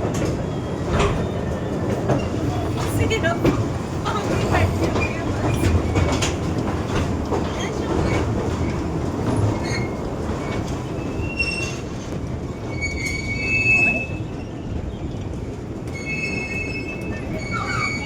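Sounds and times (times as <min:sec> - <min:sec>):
miniature train rumble: 0:00.0 - 0:18.0
high thin wheel squeals: 0:15.9 - 0:18.0.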